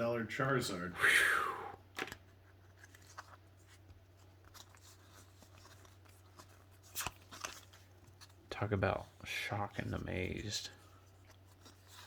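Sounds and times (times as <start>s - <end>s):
trading cards rustling and clicking: 1.9s - 9.1s, 9.8s - 12.0s.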